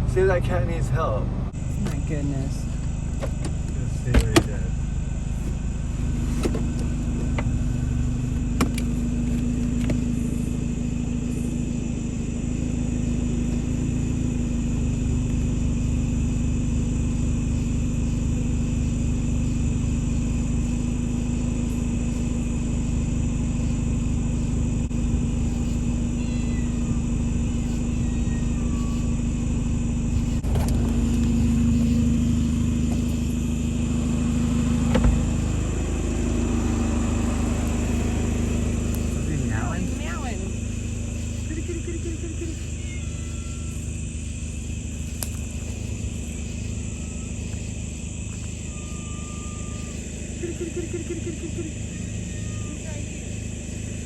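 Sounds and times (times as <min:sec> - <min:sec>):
car engine humming: 0:00.0 - 0:54.0
faint high chirps: 0:25.3 - 0:30.4, 0:31.1 - 0:53.0.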